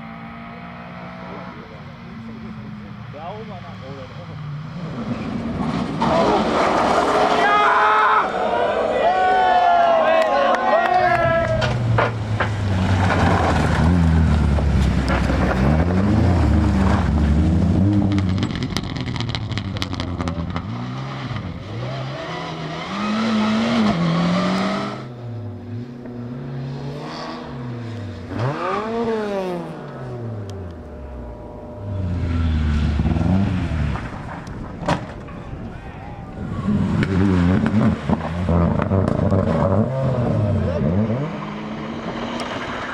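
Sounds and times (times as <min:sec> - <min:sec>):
rally car engine revving hard: 0:11.7 - 0:34.9, 0:36.4 - 0:42.9.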